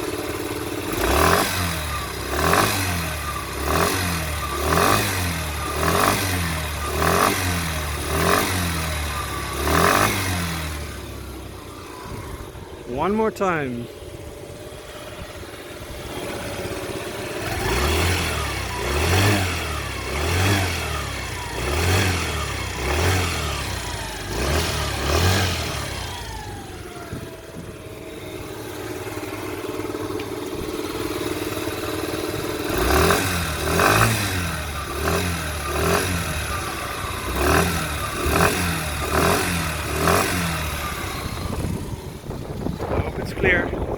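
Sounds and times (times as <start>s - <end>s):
scooter engine idling and revving: 0.0s - 43.9s.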